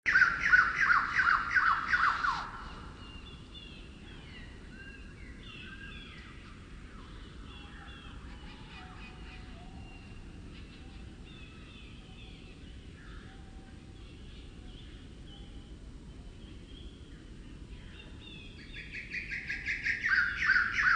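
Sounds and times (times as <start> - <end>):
low steady hum: 0.1 - 20.9
slowed-down birdsong: 0.1 - 20.9.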